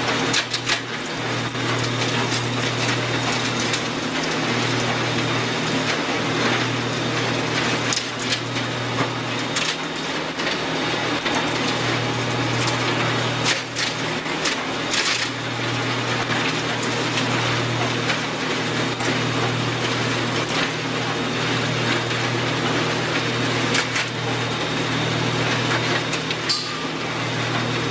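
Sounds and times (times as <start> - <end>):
wood shredder drone: 0.0 - 27.9.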